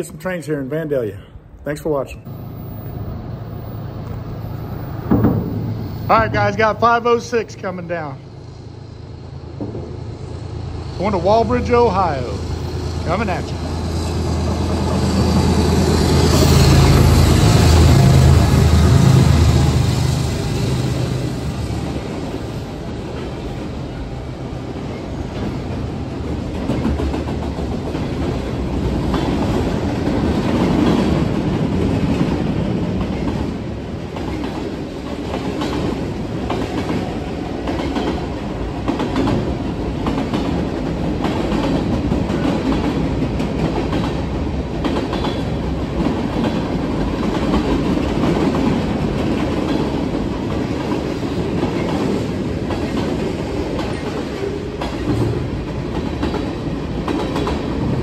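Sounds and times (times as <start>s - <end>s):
locomotive engines humming: 1.6s - 31.4s
train wheels rumbling and clicking: 2.3s - 58.0s.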